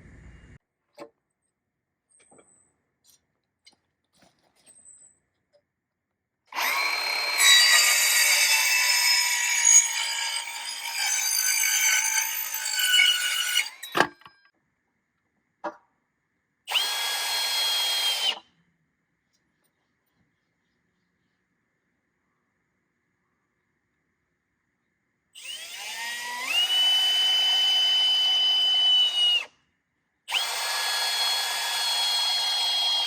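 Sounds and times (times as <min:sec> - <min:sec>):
power drill whining: 0:06.5 - 0:14.4, 0:16.7 - 0:18.4, 0:25.4 - 0:29.5, 0:30.3 - 0:33.0.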